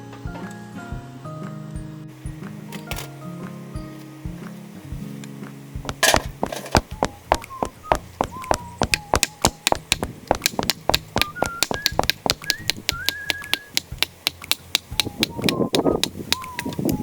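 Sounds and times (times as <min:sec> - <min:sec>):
hammer striking metal peg: 0:05.9 - 0:06.9.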